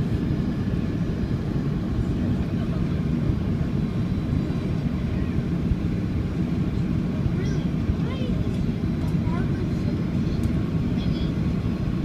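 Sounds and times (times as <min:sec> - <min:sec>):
jet engine cabin rumble: 0:00.0 - 0:12.0.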